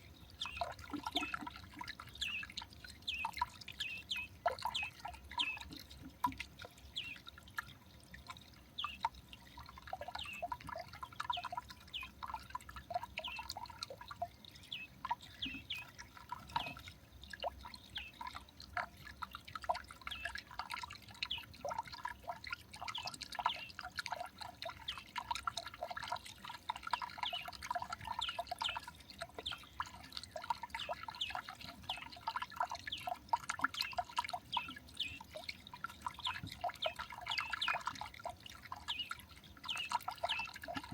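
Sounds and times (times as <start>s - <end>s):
small birds chirping: 0.2s - 5.8s, 8.8s - 12.2s, 13.1s - 13.7s, 14.4s - 18.4s, 22.9s - 23.9s, 26.9s - 38.1s, 38.7s - 40.9s.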